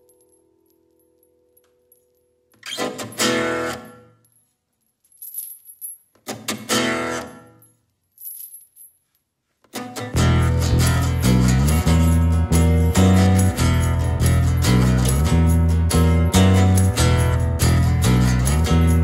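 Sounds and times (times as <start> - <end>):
acoustic guitar strumming chords: 9.8 - 19.0.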